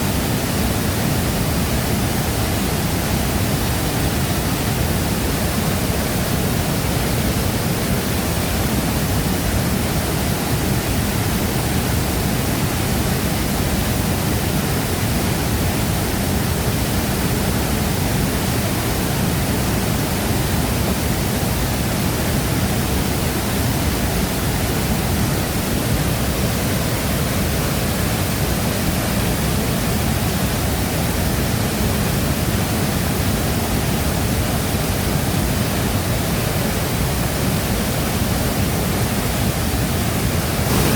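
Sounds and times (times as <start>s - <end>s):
waterfall roaring: 0.0s - 40.9s.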